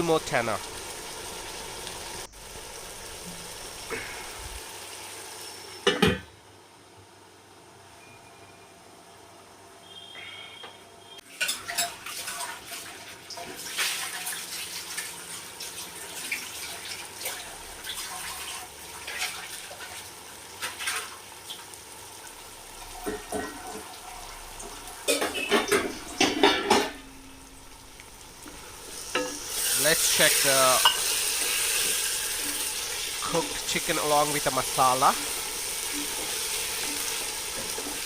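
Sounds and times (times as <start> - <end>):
steady hiss: 0.0 - 5.8, 24.2 - 38.0
pot and utensils clattering: 11.3 - 14.2, 22.9 - 24.0, 24.6 - 27.3, 29.1 - 29.7, 30.8 - 31.5, 35.1 - 38.0.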